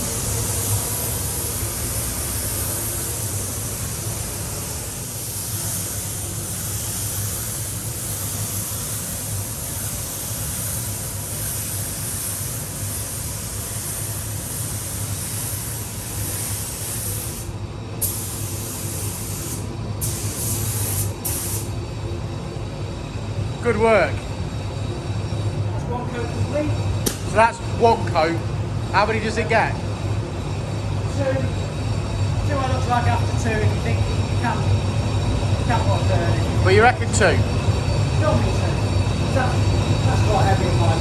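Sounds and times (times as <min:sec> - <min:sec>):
paint spray gun hissing: 0:00.0 - 0:21.8.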